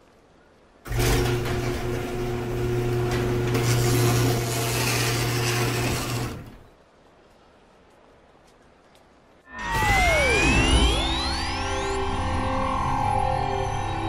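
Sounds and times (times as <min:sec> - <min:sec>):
small motor grinding: 0:00.9 - 0:06.6
low hum: 0:09.5 - 0:14.0.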